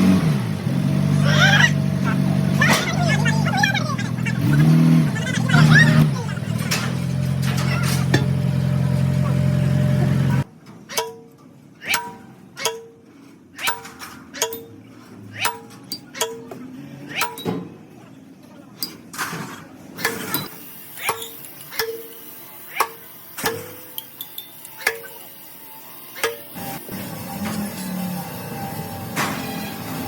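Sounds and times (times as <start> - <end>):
hammer striking metal: 7.6 - 8.5, 10.9 - 17.8, 20.0 - 25.3, 26.1 - 26.6.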